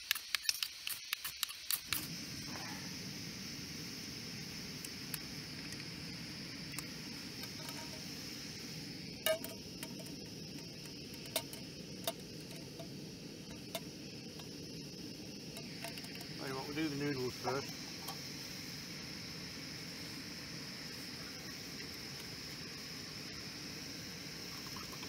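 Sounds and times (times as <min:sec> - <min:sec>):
gas stove burner hissing: 0:00.0 - 0:25.0
pans and utensils clicking: 0:07.4 - 0:08.1, 0:09.2 - 0:14.5, 0:15.5 - 0:16.4.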